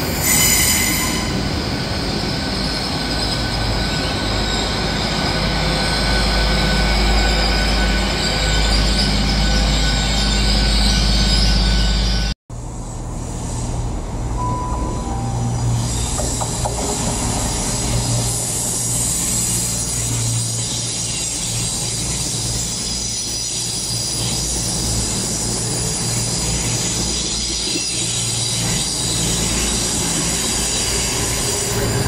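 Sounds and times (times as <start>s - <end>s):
high-pitched wheel squeal: 0.0s - 12.3s
train running with low hum: 0.0s - 32.0s.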